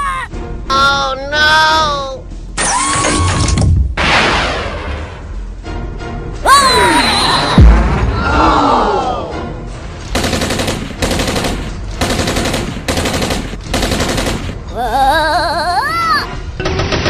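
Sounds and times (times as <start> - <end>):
machine-gun fire: 10.1 - 14.6.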